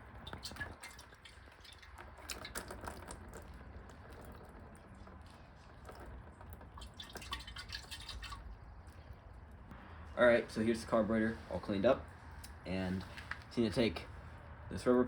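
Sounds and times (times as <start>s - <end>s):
liquid dripping and trickling: 0.0s - 9.7s.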